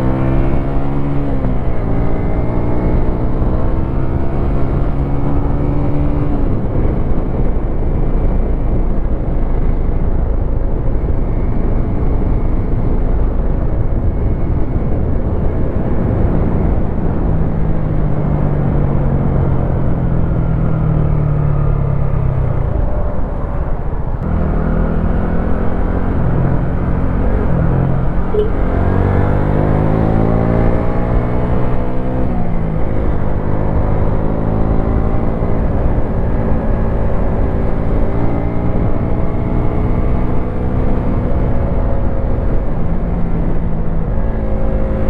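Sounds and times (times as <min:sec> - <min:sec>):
heavy low rushing noise: 0:04.8 - 0:34.1.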